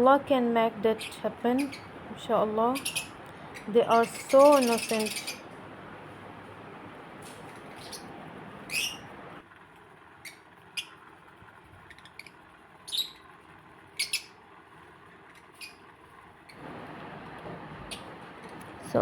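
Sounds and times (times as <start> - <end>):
lovebirds high calls: 0.8 - 5.6, 7.2 - 9.2, 11.8 - 14.4, 15.3 - 16.7, 17.8 - 18.2.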